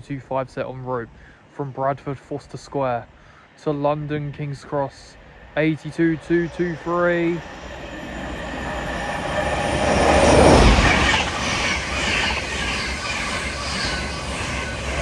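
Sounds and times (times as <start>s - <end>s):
train passing at speed: 2.8s - 15.0s
wheels rushing on rail: 3.8s - 15.0s.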